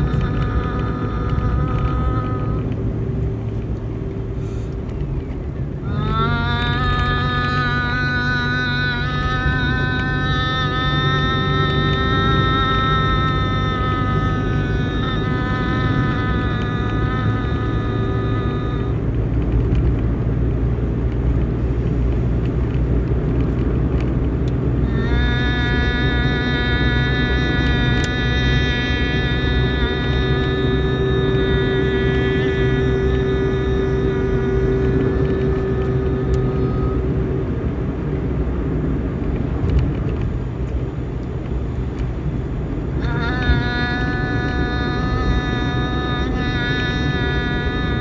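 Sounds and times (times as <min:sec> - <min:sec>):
steady pitched tone: 0:00.0 - 0:04.3, 0:05.6 - 0:19.2, 0:24.8 - 0:38.1, 0:42.9 - 0:48.0
vehicle rumble: 0:00.0 - 0:48.0.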